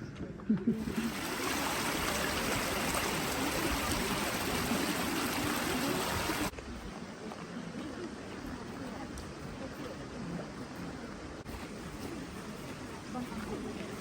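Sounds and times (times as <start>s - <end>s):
running water rushing: 0.8s - 6.5s.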